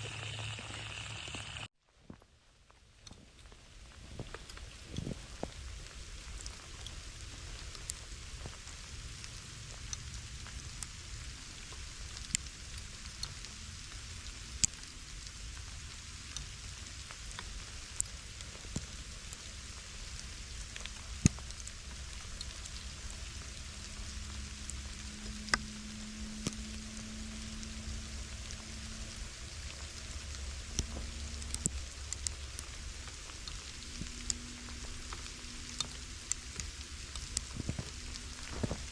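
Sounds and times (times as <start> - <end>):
steak sizzling in a skillet: 0.0 - 1.7.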